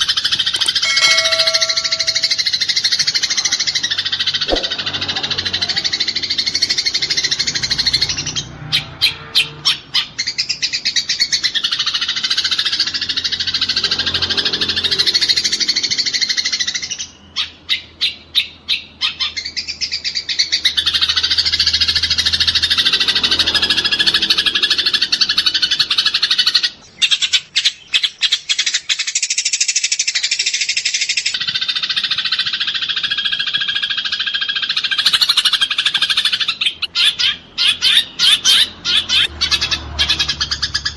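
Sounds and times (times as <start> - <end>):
sparrows chattering and chirping: 0.0 - 40.9.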